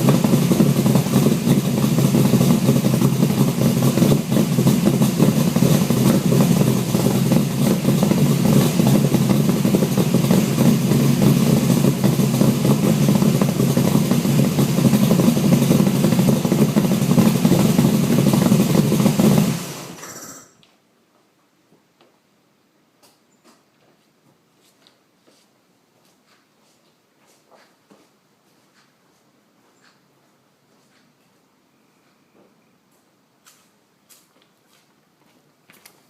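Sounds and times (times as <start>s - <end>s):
raspy engine idling: 0.0s - 20.2s.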